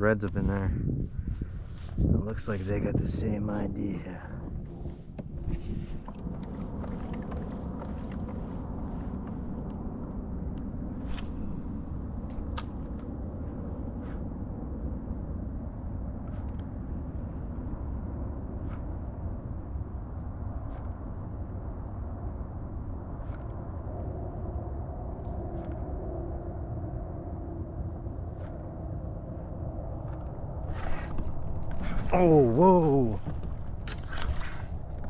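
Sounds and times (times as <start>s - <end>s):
outboard engine rumbling: 4.3s - 10.0s, 30.0s - 35.0s.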